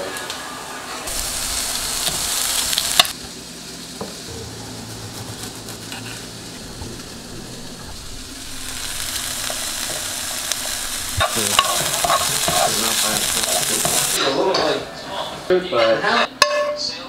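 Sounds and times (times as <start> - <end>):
food sizzling in a frying pan: 0.0 - 14.7
rice being stirred: 8.2 - 14.2.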